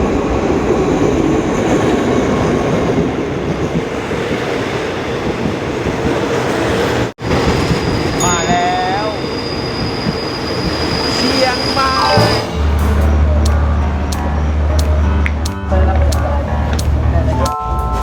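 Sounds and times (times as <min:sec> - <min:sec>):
train wheels rattling on rails: 0:00.0 - 0:13.8.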